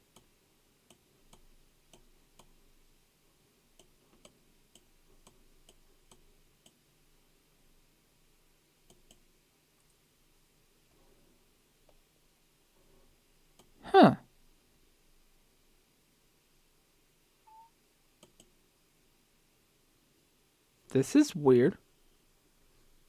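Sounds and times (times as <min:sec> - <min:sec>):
computer mouse clicks: 0:00.9 - 0:02.6, 0:03.8 - 0:06.8, 0:08.9 - 0:09.2, 0:18.2 - 0:18.6.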